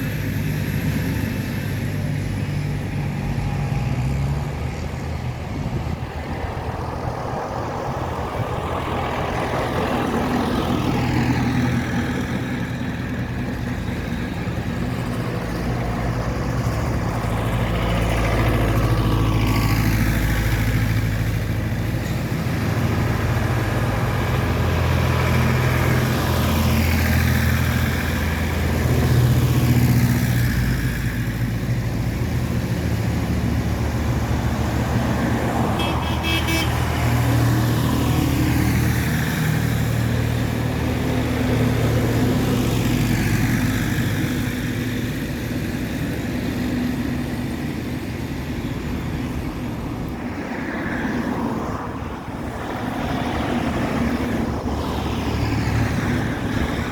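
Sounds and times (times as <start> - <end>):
tractor engines passing: 0.0 - 56.9
quick horn toots: 35.8 - 37.0.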